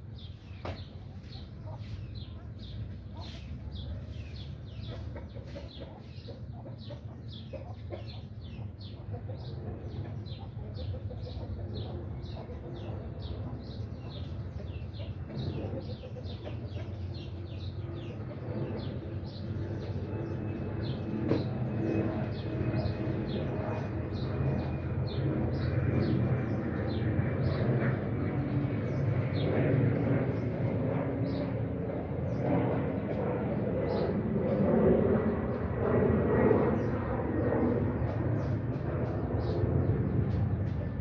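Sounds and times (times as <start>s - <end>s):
steady low rumble: 17.2s - 41.0s.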